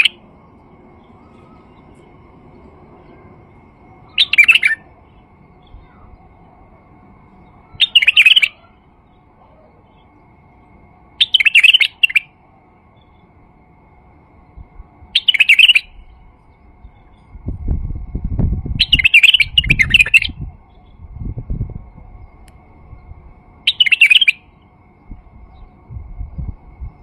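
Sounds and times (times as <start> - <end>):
bulbul warbled song: 0.0 - 10.4, 11.1 - 13.4, 14.4 - 17.5, 18.7 - 26.0.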